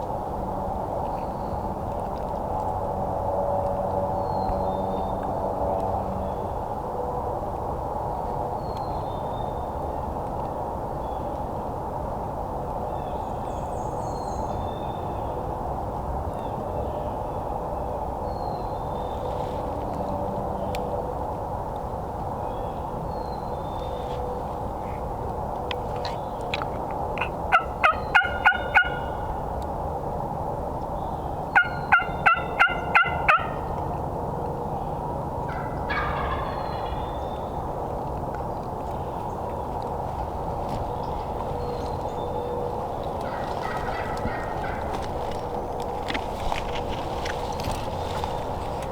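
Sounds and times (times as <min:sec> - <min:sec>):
low outdoor rushing noise: 0:00.0 - 0:48.9
wild turkey calling: 0:27.2 - 0:29.4, 0:31.6 - 0:33.8, 0:35.5 - 0:37.5, 0:41.0 - 0:45.8.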